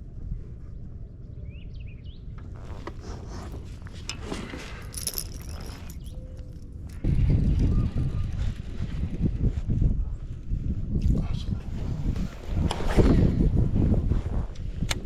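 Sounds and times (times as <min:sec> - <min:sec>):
light rattling and clicking: 0:02.4 - 0:07.0
wind rumbling on microphone: 0:02.5 - 0:15.0.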